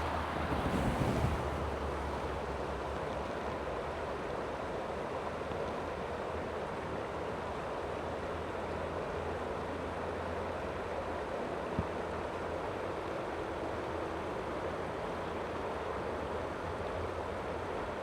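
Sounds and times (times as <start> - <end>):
wind rumble on microphone: 0.0 - 2.3
creek flowing: 0.0 - 2.8.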